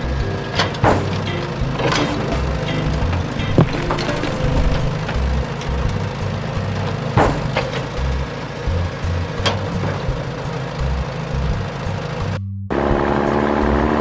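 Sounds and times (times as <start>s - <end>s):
background music: 0.0s - 14.0s
sharp knocks: 0.6s - 5.2s, 7.2s - 8.1s.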